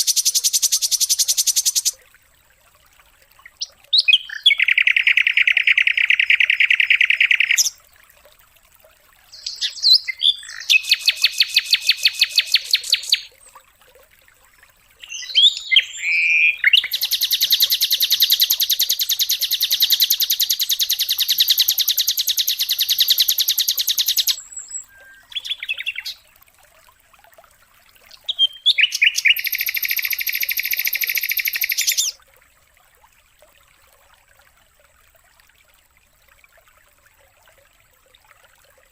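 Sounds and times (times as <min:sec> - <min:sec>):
bird song with trilled notes: 0:03.5 - 0:07.8, 0:09.3 - 0:13.4, 0:15.0 - 0:26.2, 0:28.1 - 0:32.2.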